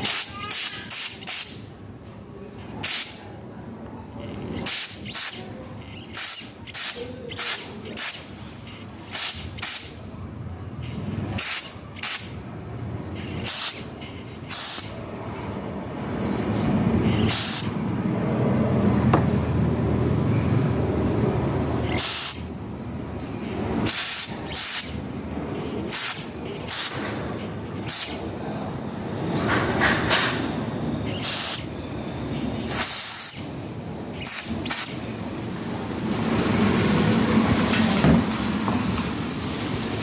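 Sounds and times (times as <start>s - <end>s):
spray hissing bursts: 0.0s - 1.7s, 2.8s - 3.2s, 4.6s - 5.5s, 6.2s - 8.4s, 9.1s - 10.0s, 11.4s - 12.4s, 13.4s - 13.9s, 14.5s - 15.0s, 17.1s - 17.8s, 21.9s - 22.5s, 23.8s - 25.0s, 25.9s - 27.0s, 27.8s - 28.2s, 31.2s - 31.7s, 32.7s - 33.6s, 34.2s - 35.0s.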